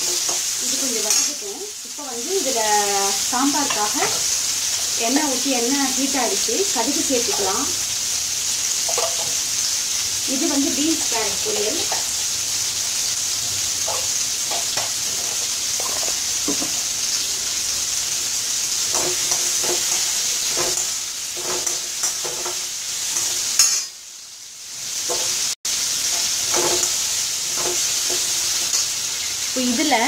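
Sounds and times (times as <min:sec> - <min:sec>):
metal spoon scraping pan: 0:00.0 - 0:01.4, 0:07.2 - 0:07.6, 0:13.8 - 0:16.7, 0:18.8 - 0:23.9, 0:26.0 - 0:29.2
vegetables sizzling in oil: 0:00.0 - 0:30.0
spoon clinking against pan: 0:23.5 - 0:24.0.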